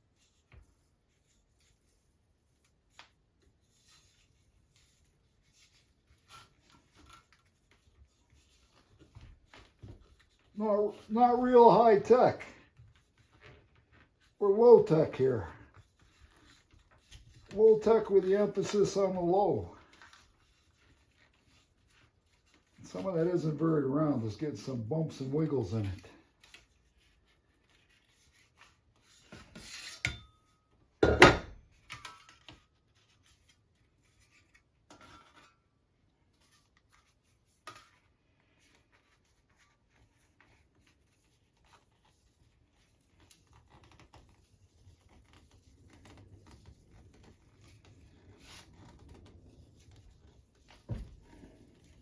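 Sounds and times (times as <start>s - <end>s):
aluminum sheet crinkling: 0.2s - 24.3s.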